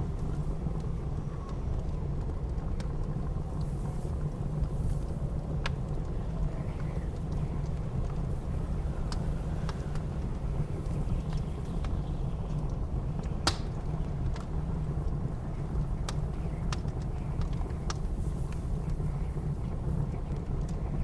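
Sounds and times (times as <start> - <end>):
low rumble of blizzard wind: 0.0 - 21.0
wood fire crackling and popping: 0.0 - 21.0.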